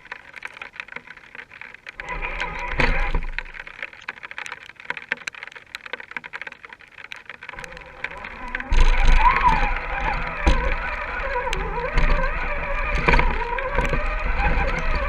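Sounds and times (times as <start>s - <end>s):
stones and twigs crackling: 0.0s - 15.0s
toy car motor whine: 2.0s - 3.3s, 7.6s - 15.0s.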